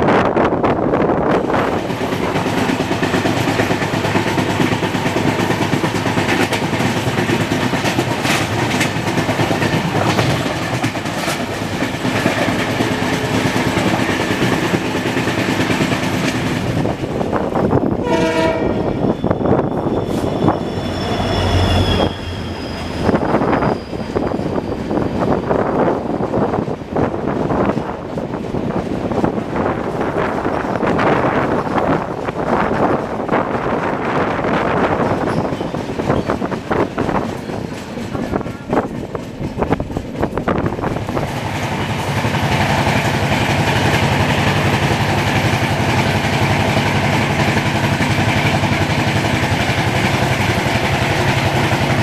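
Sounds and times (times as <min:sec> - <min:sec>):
container train passing with rumble: 0:00.0 - 0:52.0
train rushing on rails: 0:00.0 - 0:52.0
wheels clickety-clack: 0:01.5 - 0:17.3, 0:34.4 - 0:52.0
train horn blasts: 0:18.0 - 0:19.4
faint high squeal: 0:19.0 - 0:25.1, 0:35.2 - 0:36.4.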